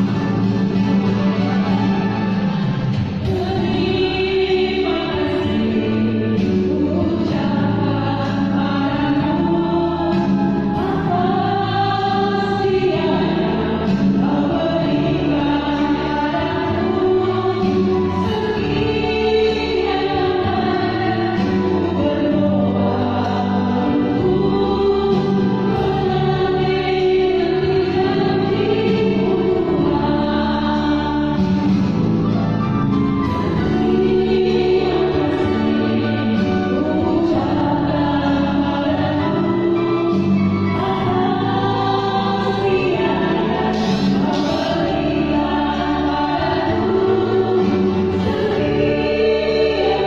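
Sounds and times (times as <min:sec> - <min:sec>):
choir singing a hymn: 0:00.0 - 0:50.0.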